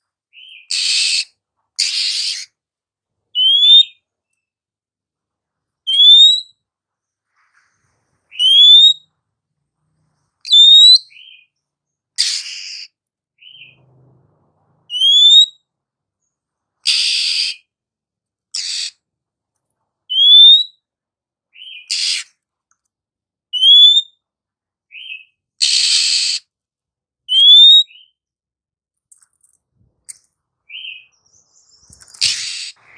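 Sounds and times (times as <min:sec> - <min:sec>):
bird harsh rasping calls: 0:00.4 - 0:02.6, 0:12.2 - 0:13.8, 0:16.8 - 0:17.7, 0:18.5 - 0:19.0, 0:21.6 - 0:22.4, 0:25.0 - 0:26.5, 0:30.7 - 0:32.9
bird rising whistle: 0:08.3 - 0:09.0, 0:10.5 - 0:11.2, 0:14.9 - 0:15.5.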